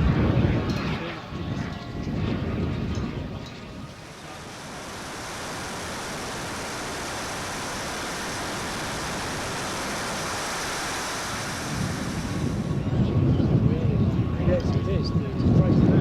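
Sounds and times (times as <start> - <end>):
wind on microphone: 0.0 - 16.0
jet turbine roar: 3.7 - 13.3.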